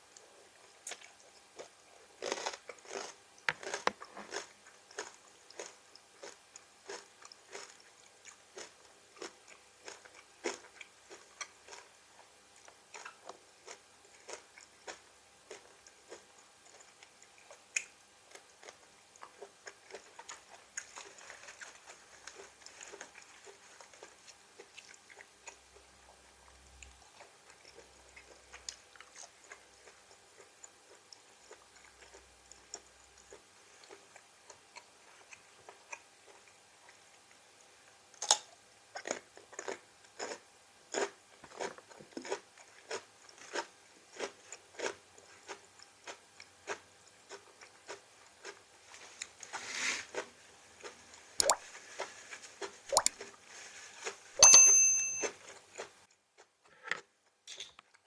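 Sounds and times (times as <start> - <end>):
chewing crunchy vegetables: 0.1 - 54.3, 55.4 - 58.0
wet mouth clicks: 51.4 - 51.6, 52.9 - 53.2.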